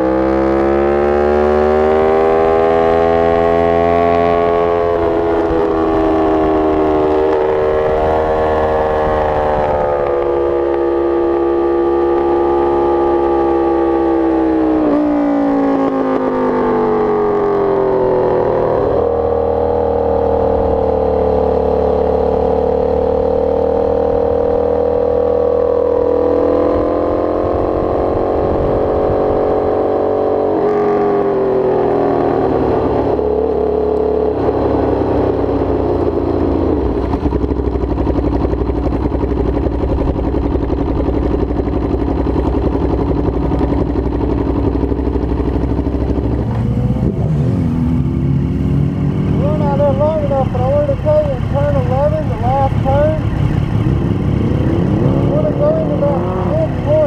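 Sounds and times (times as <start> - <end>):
motorcycle engine at high revs: 0.0 - 57.0.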